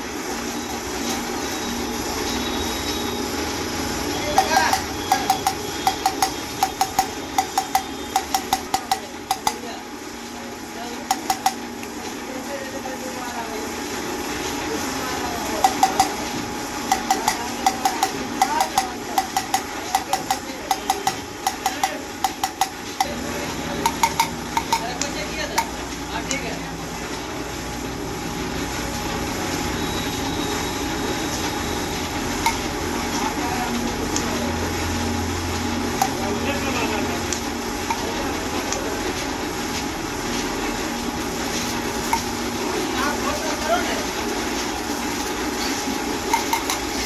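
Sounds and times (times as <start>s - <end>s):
steady background hum: 0.0s - 29.4s
metallic tapping: 4.2s - 9.7s, 11.0s - 11.8s, 15.6s - 25.9s, 32.4s - 32.7s, 36.0s - 36.3s, 37.8s - 38.2s, 42.0s - 42.5s, 46.2s - 47.0s.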